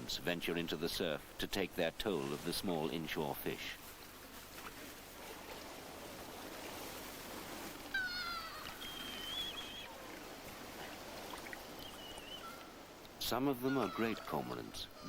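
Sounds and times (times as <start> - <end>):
surf washing: 0.0 - 15.0
seabird calls: 7.8 - 15.0.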